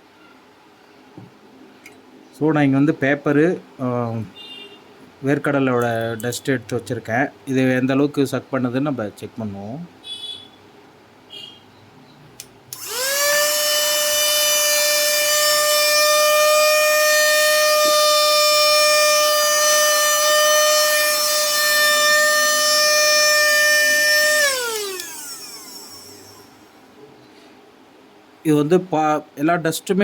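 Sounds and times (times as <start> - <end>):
vacuum motor whine: 12.7 - 26.7.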